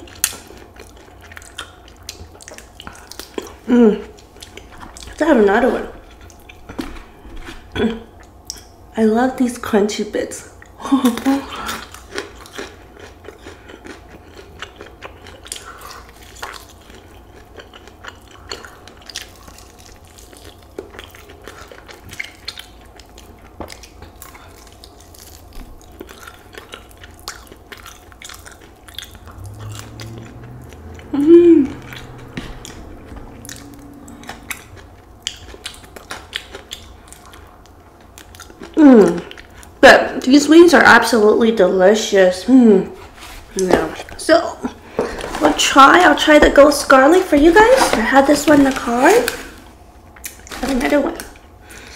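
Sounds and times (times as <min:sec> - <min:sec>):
chewing crispy food: 0:00.0 - 0:08.8, 0:10.5 - 0:40.4, 0:46.9 - 0:51.9
person humming: 0:31.0 - 0:34.5.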